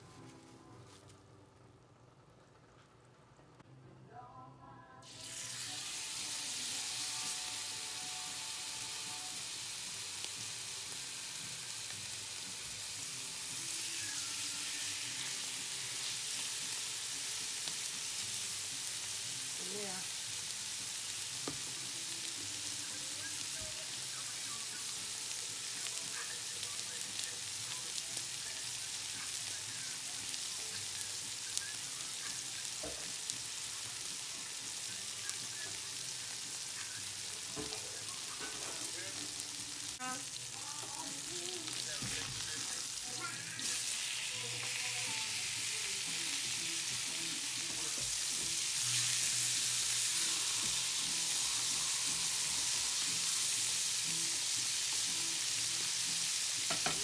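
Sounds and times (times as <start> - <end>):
steak sizzling in a pan: 5.0 - 57.0.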